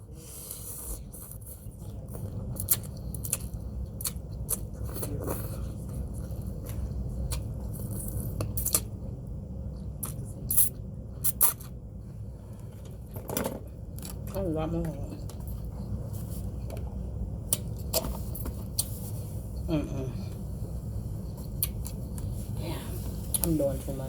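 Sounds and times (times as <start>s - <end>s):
low steady rumble: 0.0s - 24.0s.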